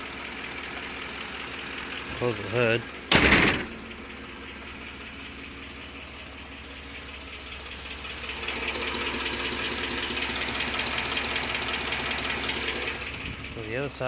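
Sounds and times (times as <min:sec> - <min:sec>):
fast ticking engine noise: 0:00.0 - 0:14.0
truck engine idling: 0:00.0 - 0:14.0.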